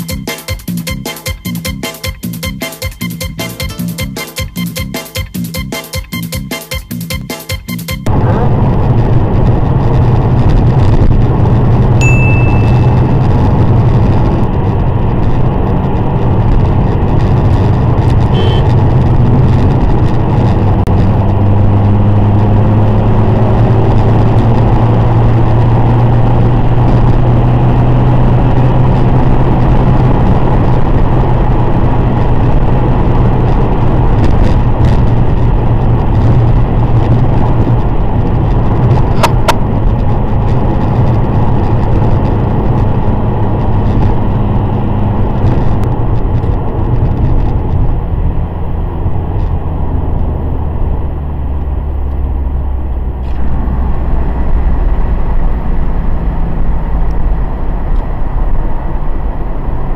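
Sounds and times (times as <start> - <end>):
car engine and road noise droning: 8.0 - 59.9
short electronic beep: 12.0 - 13.5, 18.3 - 18.8.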